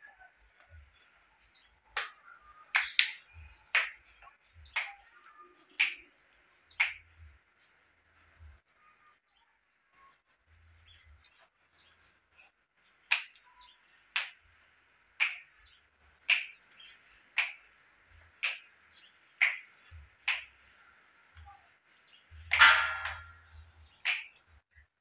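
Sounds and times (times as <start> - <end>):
sharp knocks: 22.5 - 23.3.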